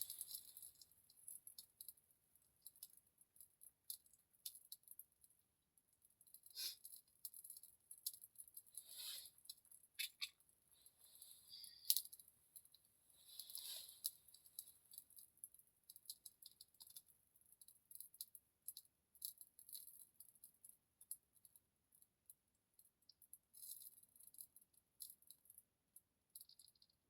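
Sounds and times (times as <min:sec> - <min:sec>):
small fire crackling: 0:00.0 - 0:20.0.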